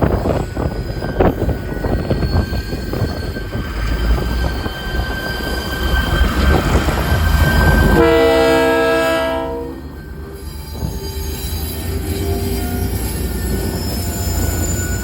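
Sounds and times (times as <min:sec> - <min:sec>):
train wheels rumbling on rail: 0:00.0 - 0:15.0
locomotive horn blast: 0:07.5 - 0:10.0.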